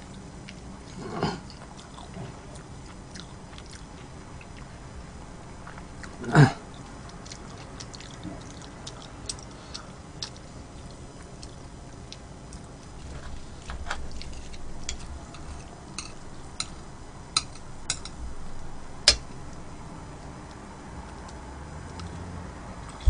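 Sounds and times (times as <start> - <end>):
chewing: 0.0 - 4.8, 5.6 - 16.8
sharp clicks of utensils: 17.4 - 18.2, 19.1 - 19.4.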